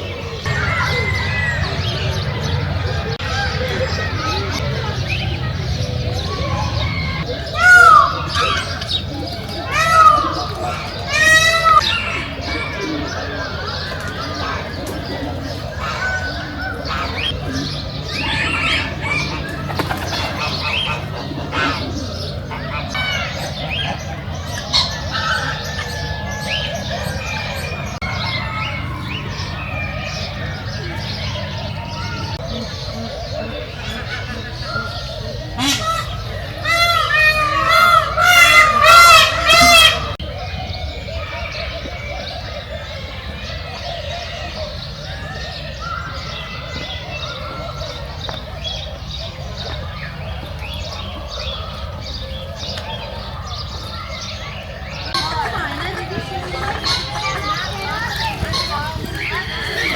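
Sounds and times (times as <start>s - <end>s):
birds chirping and squawking: 0.0s - 59.9s
steady low rumble: 0.5s - 7.5s.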